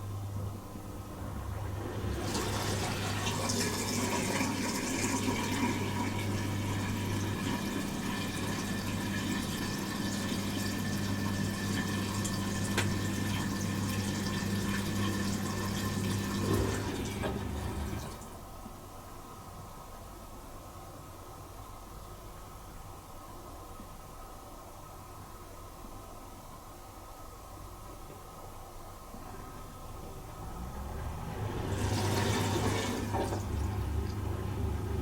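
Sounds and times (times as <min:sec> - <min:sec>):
dishwasher low hum: 0:00.0 - 0:35.0
water rushing inside dishwasher: 0:01.1 - 0:18.4, 0:30.0 - 0:35.0.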